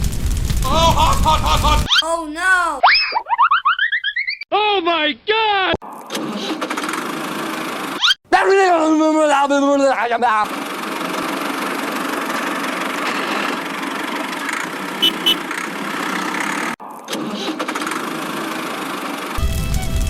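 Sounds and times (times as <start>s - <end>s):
small tractor engine running: 10.5s - 16.7s.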